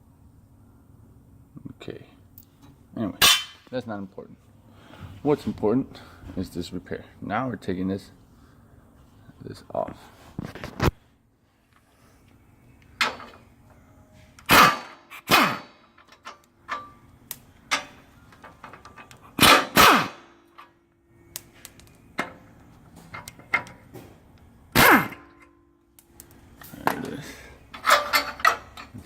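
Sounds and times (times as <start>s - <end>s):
impact wrench bursts: 19.4s - 20.3s.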